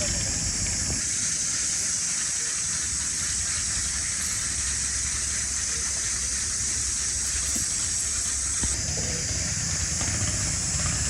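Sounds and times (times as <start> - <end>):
high-pitched hiss: 0.0 - 11.0.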